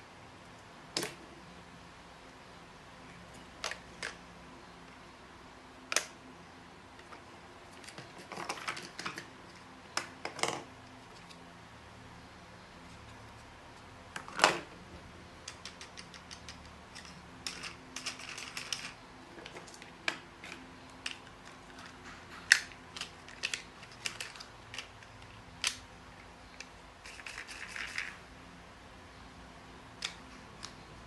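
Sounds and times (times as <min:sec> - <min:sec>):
faint hum: 0:00.0 - 0:31.0.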